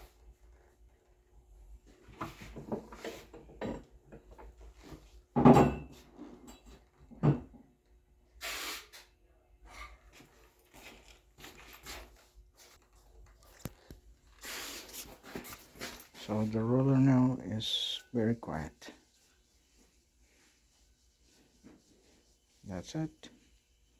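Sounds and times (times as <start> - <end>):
brief hiss: 8.4 - 9.1.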